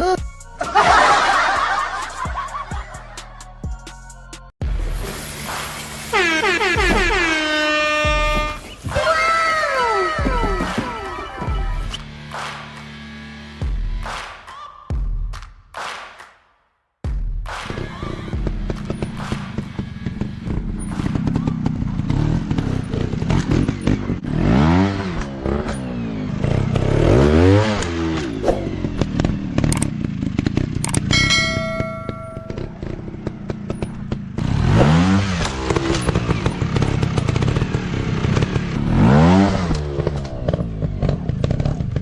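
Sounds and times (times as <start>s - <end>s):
dirt bike engines revving: 5.1s - 12.4s, 17.7s - 42.0s
short chime-like ringing tone: 31.1s - 32.8s.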